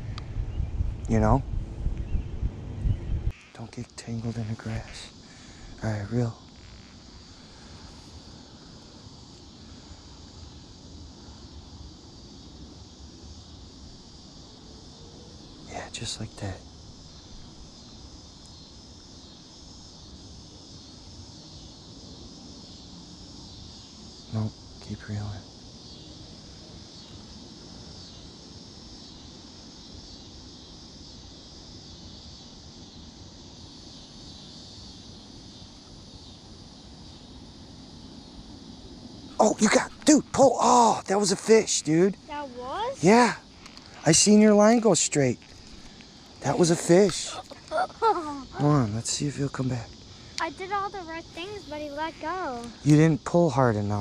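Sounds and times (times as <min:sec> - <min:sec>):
wind buffeting microphone: 0:00.0 - 0:03.3
insects buzzing: 0:00.0 - 0:54.0
outdoor hiss: 0:00.0 - 0:54.0
thin high whine: 0:37.3 - 0:54.0.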